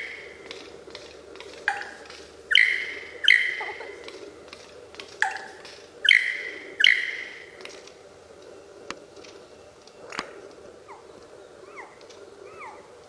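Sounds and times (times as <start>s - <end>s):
bird calling loudly: 1.6s - 4.4s, 5.2s - 7.8s, 10.8s - 13.0s.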